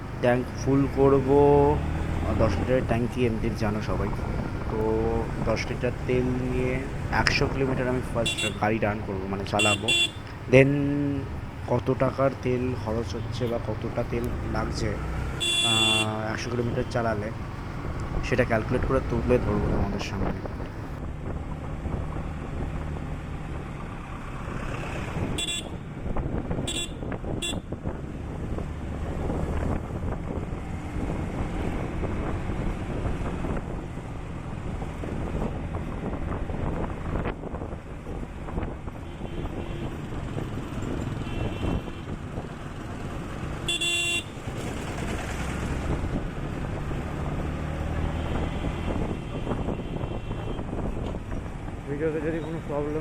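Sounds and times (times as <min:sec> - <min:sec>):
motorcycle engine: 0:00.0 - 0:11.9, 0:12.6 - 0:21.0, 0:38.9 - 0:49.3
wind and road noise: 0:00.0 - 0:53.0
horn toot: 0:08.0 - 0:08.7, 0:09.6 - 0:10.3, 0:15.4 - 0:17.0, 0:43.7 - 0:44.4
vehicle horn honking: 0:08.2 - 0:08.8, 0:09.6 - 0:10.4, 0:15.3 - 0:16.4, 0:25.4 - 0:25.8, 0:26.7 - 0:27.7, 0:41.2 - 0:42.1, 0:43.7 - 0:44.4
faint horn beeps: 0:15.4 - 0:16.2, 0:43.7 - 0:44.3.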